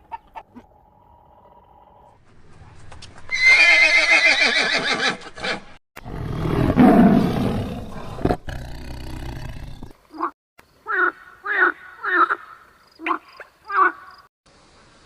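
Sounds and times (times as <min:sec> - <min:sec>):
horse whinnying: 0:03.3 - 0:07.3.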